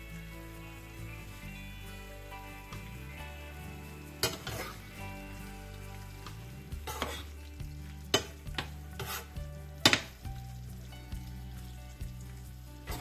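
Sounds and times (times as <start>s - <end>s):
low sizzle: 0.0s - 13.0s
metal spoon scraping pan: 4.2s - 5.0s, 6.8s - 7.4s, 8.1s - 10.2s.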